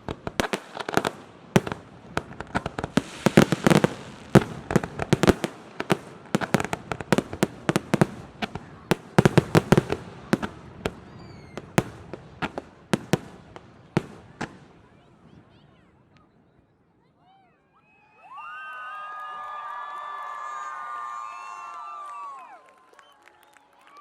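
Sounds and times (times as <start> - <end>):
firework shells bursting: 0.0 - 8.2.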